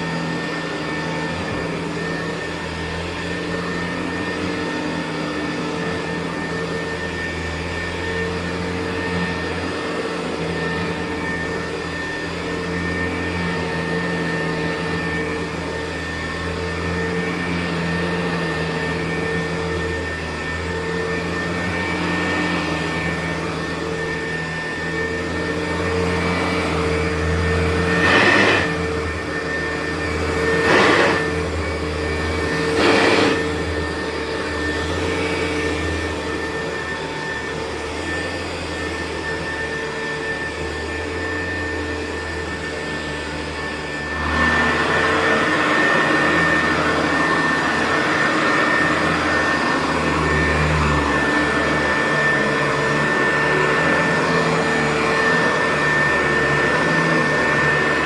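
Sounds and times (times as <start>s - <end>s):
vacuum cleaner running on carpet: 0.0s - 58.0s.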